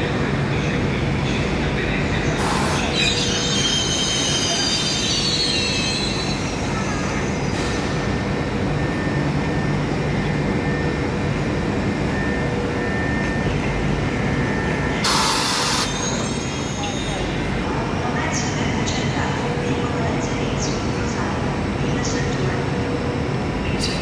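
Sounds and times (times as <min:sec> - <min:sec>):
train rolling rumble: 0:00.0 - 0:24.0
wheels squealing on rails: 0:02.4 - 0:08.2, 0:15.2 - 0:17.6.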